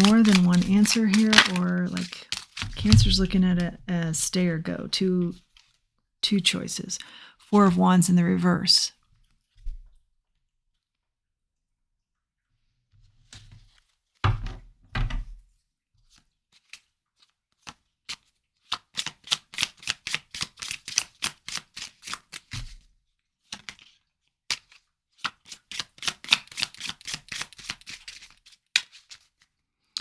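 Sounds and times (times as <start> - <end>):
cards shuffling clicks: 0.0 - 3.8, 25.7 - 29.2.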